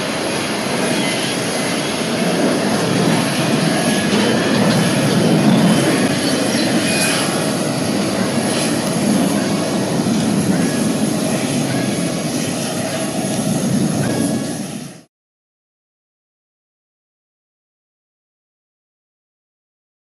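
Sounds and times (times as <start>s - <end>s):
jet engines at take-off: 0.0s - 15.1s.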